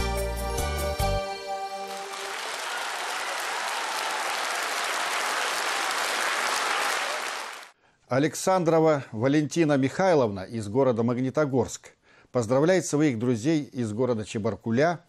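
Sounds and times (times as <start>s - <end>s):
song accompaniment: 0.0s - 4.0s
audience applauding: 1.7s - 7.8s.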